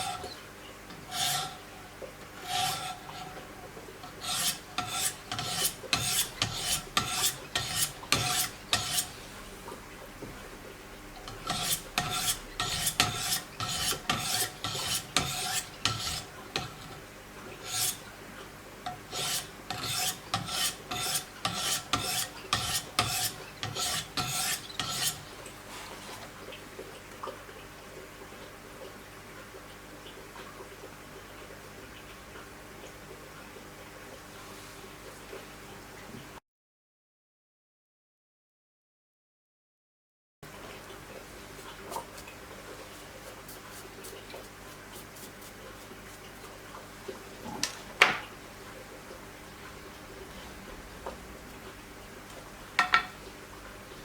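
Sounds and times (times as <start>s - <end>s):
sharpening stones rasping on knife: 1.1s - 1.5s, 4.2s - 9.1s, 11.5s - 16.2s, 19.1s - 25.2s.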